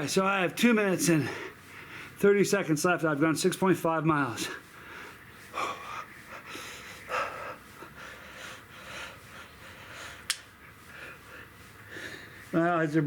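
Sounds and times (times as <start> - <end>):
man breathing hard: 1.1 - 2.2, 4.4 - 12.6
sharp click: 10.3 - 10.5.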